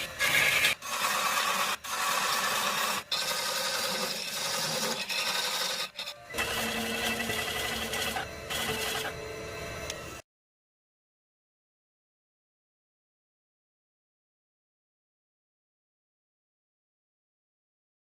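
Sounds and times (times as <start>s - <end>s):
turning tool scraping wood: 0.0s - 9.2s
lathe motor humming: 0.0s - 10.2s.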